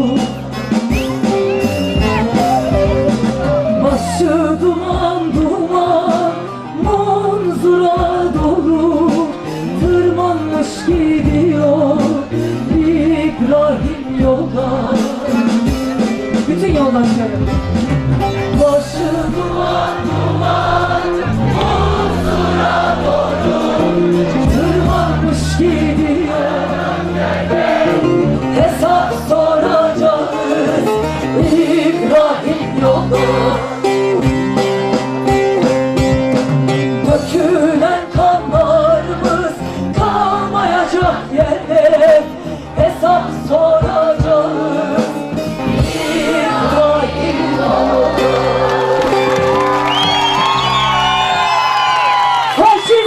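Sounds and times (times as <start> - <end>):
crowd whooping and cheering: 0.0 - 4.3, 19.1 - 25.8, 46.2 - 53.0
live band with singing and drums: 0.0 - 53.0.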